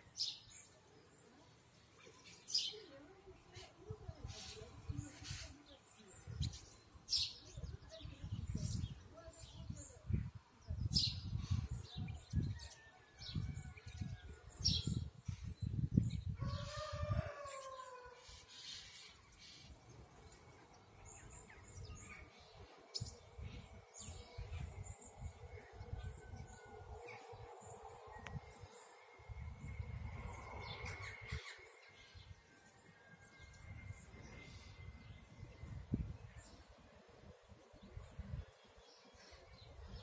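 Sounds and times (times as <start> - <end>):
flock of birds chirping: 0.0 - 40.0
gusts of low rumble: 23.0 - 31.4.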